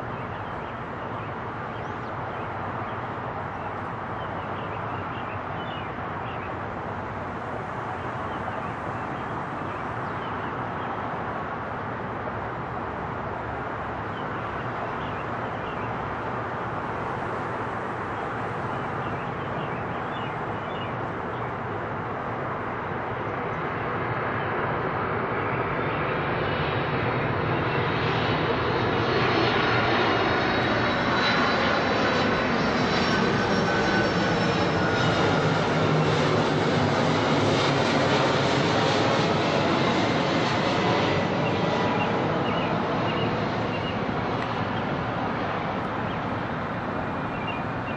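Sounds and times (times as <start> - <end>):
jet engines roaring: 25.0 - 47.9.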